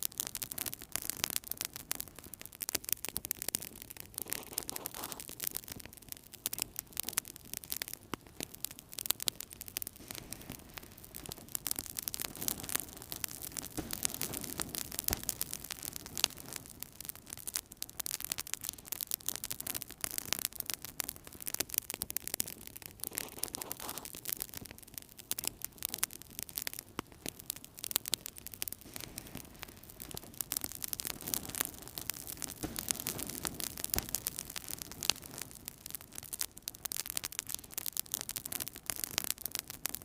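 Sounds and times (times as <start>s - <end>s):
wood fire crackling: 0.0s - 40.0s
low rush of flame: 6.5s - 17.4s, 26.6s - 37.5s.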